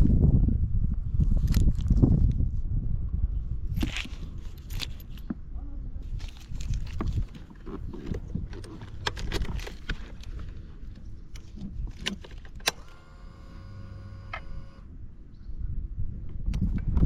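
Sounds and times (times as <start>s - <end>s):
keys jangling: 3.8s - 5.3s
electric whine: 12.7s - 14.9s.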